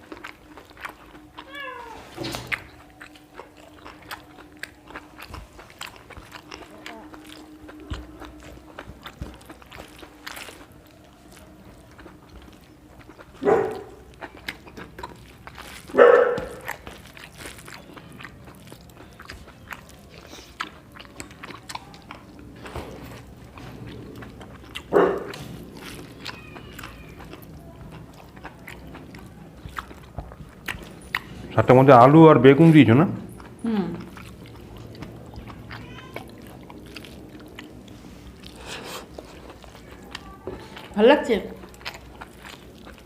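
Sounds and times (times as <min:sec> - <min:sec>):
chewing clicks: 0:02.4 - 0:31.4, 0:33.3 - 0:43.0
dog barking: 0:13.4 - 0:14.0, 0:15.9 - 0:16.7, 0:24.9 - 0:25.4.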